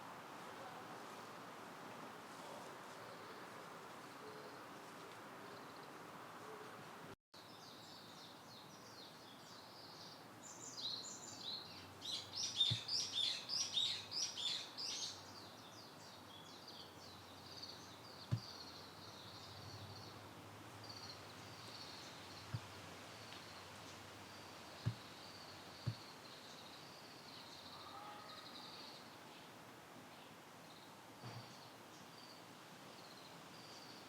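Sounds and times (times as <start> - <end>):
birds chirping: 7.4 - 34.0
faint soft thumps: 18.3 - 18.5, 24.8 - 25.1.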